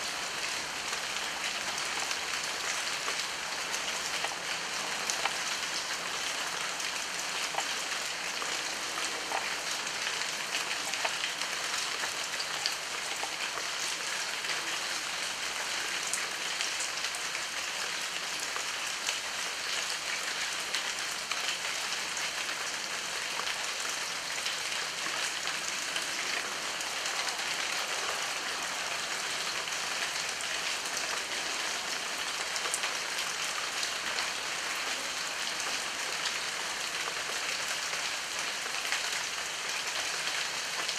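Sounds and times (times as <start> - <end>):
heavy rain: 0.0 - 40.9
raindrops ticking: 4.0 - 5.5, 7.4 - 7.9.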